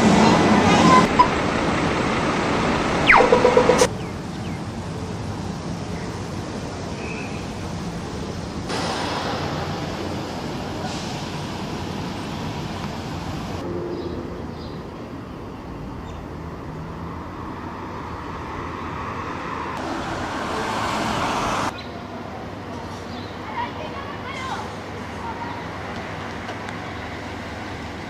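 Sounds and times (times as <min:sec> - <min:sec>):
diesel railcar engine rumbling: 0:00.0 - 0:03.1, 0:03.9 - 0:15.6.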